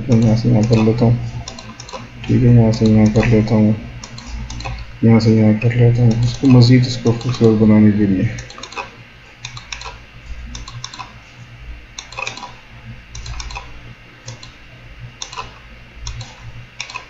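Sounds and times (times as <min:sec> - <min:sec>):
faint low hum: 0:00.0 - 0:17.0
keyboard and mouse clicks: 0:00.1 - 0:03.4, 0:04.0 - 0:04.9, 0:06.1 - 0:07.6, 0:08.4 - 0:11.2, 0:12.0 - 0:13.7, 0:14.3 - 0:14.6, 0:15.2 - 0:17.0.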